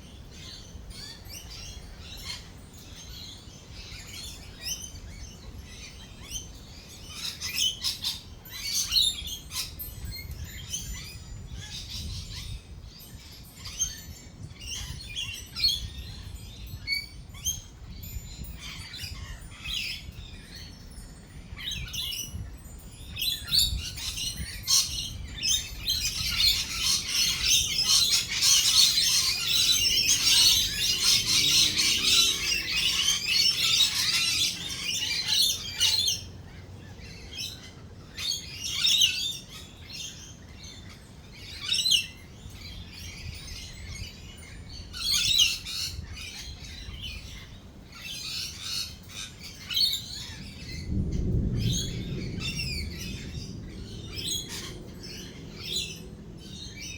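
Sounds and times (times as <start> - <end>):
parrots chattering and screeching: 23.4 - 50.8.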